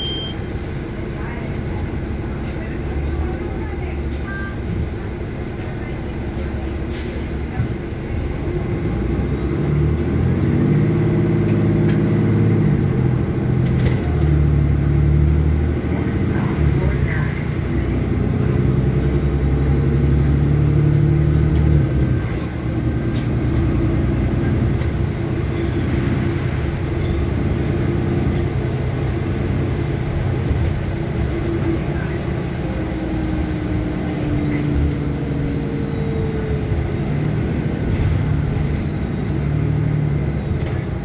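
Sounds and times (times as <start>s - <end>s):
bus engine running: 0.0s - 41.0s
road noise: 0.0s - 41.0s.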